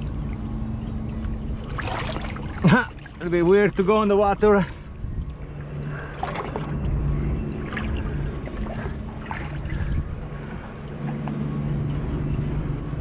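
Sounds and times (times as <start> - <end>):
light knocks or splashes: 0.0 - 7.0, 7.6 - 10.1
low rumble: 0.0 - 13.0
steady low hum: 0.0 - 13.0
water sloshing around boat: 0.0 - 13.0.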